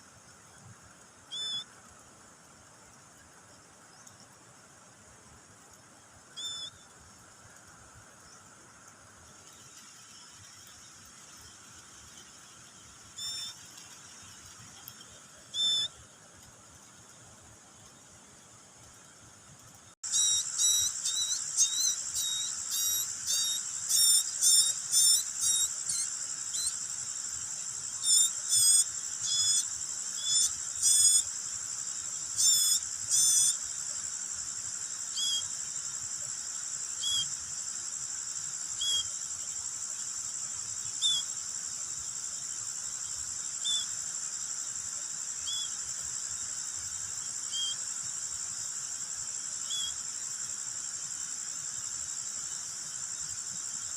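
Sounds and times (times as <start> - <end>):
high cricket-like trill: 9.4 - 16.1, 20.0 - 53.9.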